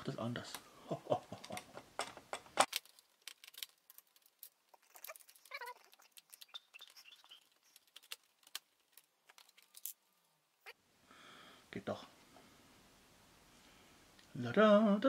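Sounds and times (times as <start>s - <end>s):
clicks and scrapes of small parts: 1.4s - 10.1s.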